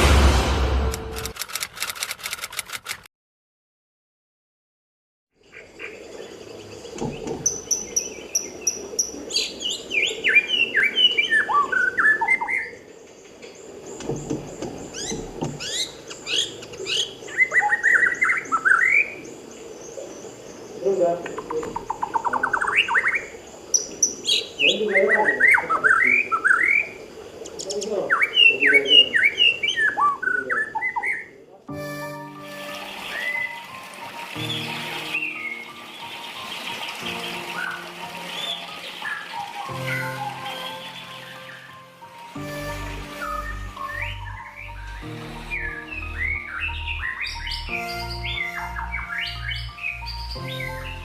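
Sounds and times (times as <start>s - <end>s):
bird whistled notes: 43.2s - 50.7s
bird high chirps: 43.2s - 51.0s.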